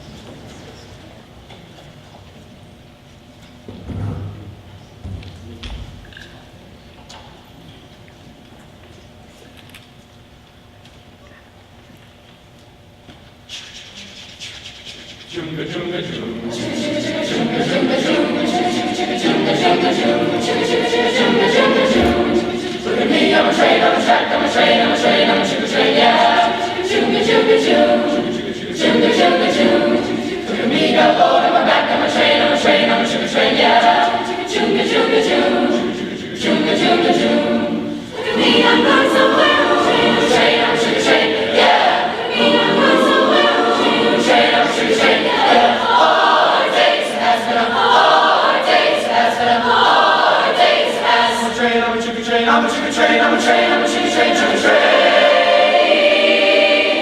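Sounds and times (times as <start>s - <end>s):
choir singing: 15.3s - 57.0s.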